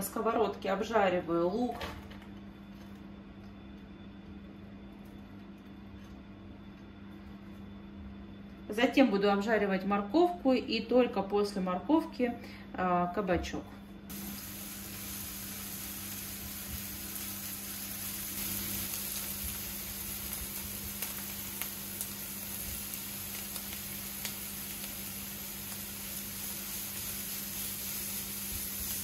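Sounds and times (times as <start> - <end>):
onion sizzling in a frying pan: 14.1 - 29.0.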